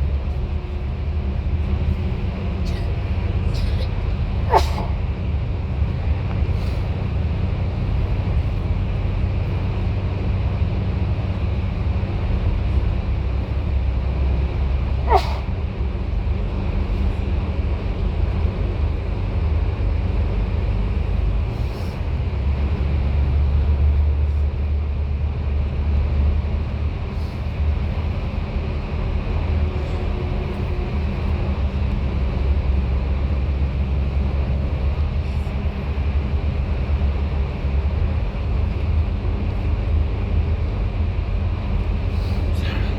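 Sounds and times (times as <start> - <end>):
bus engine and road noise: 0.0 - 42.9.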